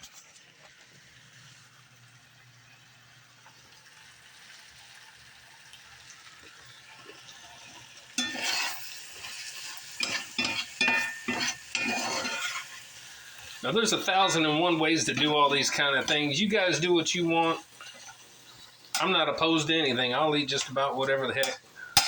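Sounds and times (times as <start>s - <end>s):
food sizzling in a skillet: 0.0s - 22.0s
utensil scraping through food: 8.2s - 22.0s.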